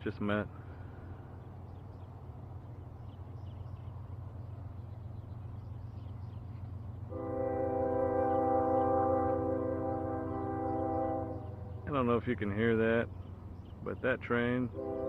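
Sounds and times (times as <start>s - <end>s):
train horn chord: 7.1s - 11.8s, 14.7s - 15.0s.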